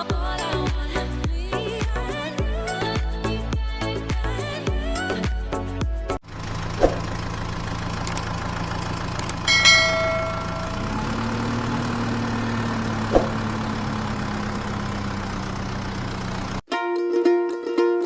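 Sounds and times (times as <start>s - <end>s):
engine idling: 5.6s - 16.6s
bell-like ding: 9.4s - 11.0s
short thump: 13.1s - 13.4s.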